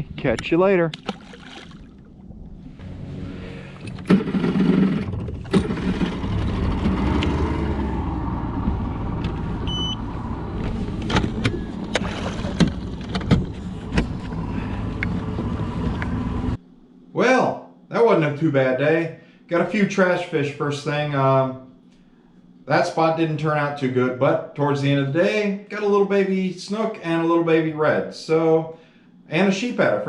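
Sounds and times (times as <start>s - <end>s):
vehicle engine rumble: 1.5s - 16.6s.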